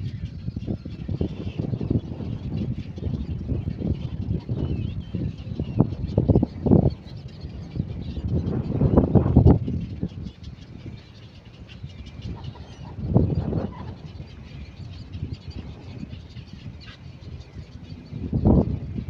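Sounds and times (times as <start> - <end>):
cormorants croaking: 12.3 - 14.5.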